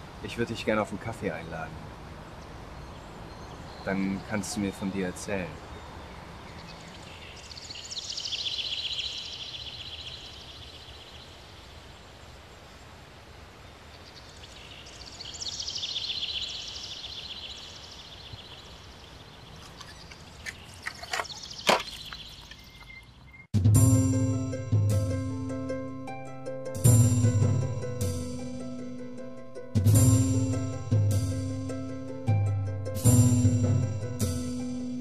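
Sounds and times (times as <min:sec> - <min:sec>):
songbird trilling: 0:02.4 - 0:11.4, 0:14.0 - 0:23.5.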